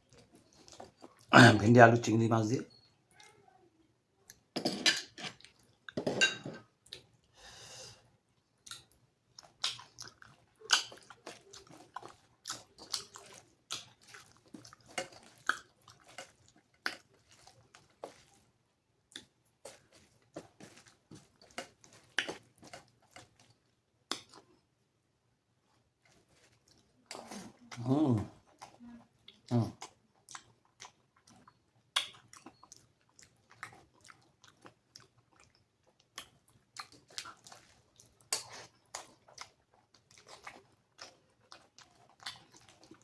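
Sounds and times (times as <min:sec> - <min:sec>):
wet chewing: 0:00.1 - 0:01.3, 0:08.6 - 0:24.6, 0:26.0 - 0:43.0
lip smacks and mouth clicks: 0:12.6 - 0:17.2, 0:24.1 - 0:24.5, 0:29.3 - 0:37.6.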